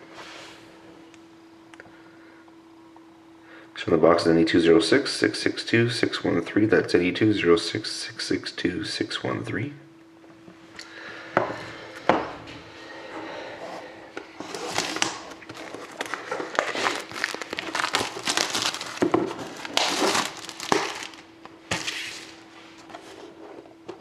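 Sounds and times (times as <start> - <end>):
plastic wrapping crinkling: 14.4 - 22.4.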